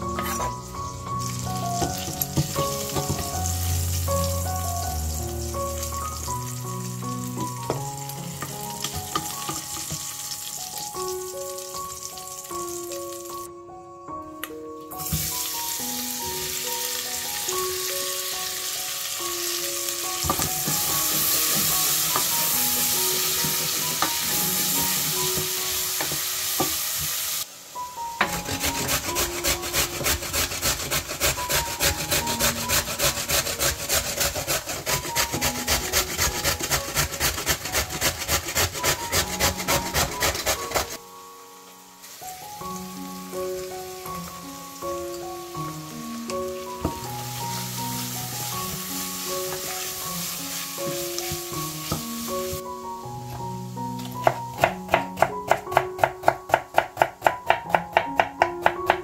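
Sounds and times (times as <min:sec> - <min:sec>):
onions sizzling in a pot: 0:00.0 - 0:13.5, 0:14.9 - 0:59.0
carrot grated on metal grater: 0:28.2 - 0:41.0
wooden spoon stirring: 0:28.3 - 0:40.9.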